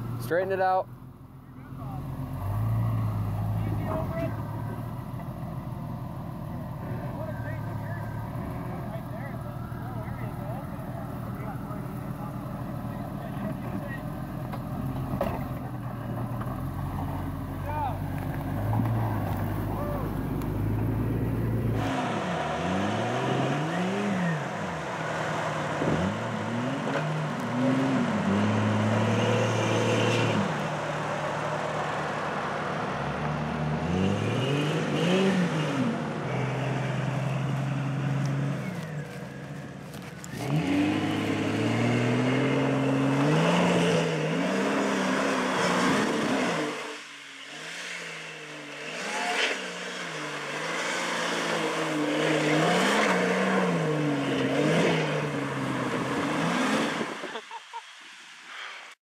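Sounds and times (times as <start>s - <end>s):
car engine revving while driving: 1.9s - 5.5s, 10.1s - 39.2s, 39.9s - 57.3s.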